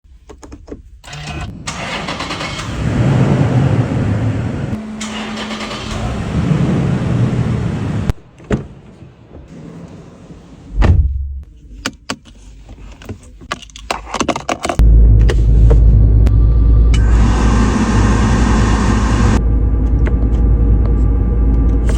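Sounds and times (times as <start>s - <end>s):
car engine running: 2.7s - 8.1s, 14.8s - 21.9s.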